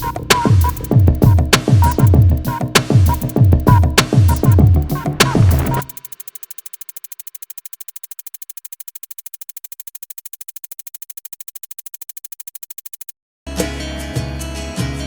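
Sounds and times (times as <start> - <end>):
synthesized music: 0.0 - 6.6
rapid electronic clicking: 0.0 - 13.2.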